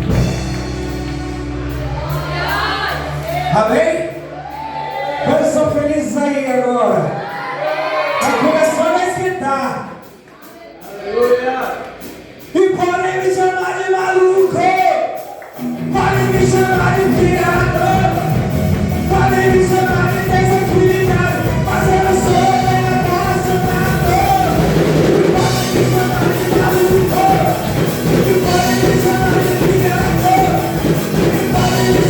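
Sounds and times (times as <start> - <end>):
band with drums playing: 0.0 - 32.0
person singing: 15.7 - 32.0.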